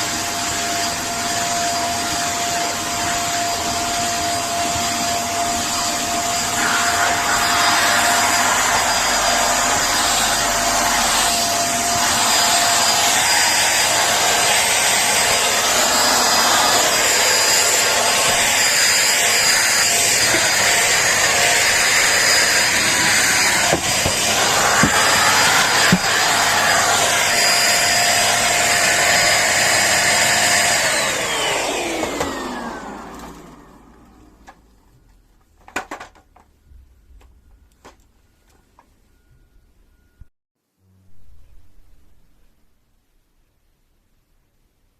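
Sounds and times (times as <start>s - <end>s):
vacuum cleaner running: 0.0s - 34.7s
vacuum motor winding down: 0.1s - 34.6s.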